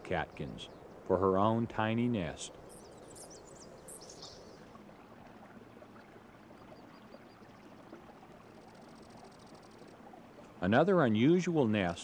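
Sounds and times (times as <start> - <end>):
small bird high chirps: 2.7 - 4.6.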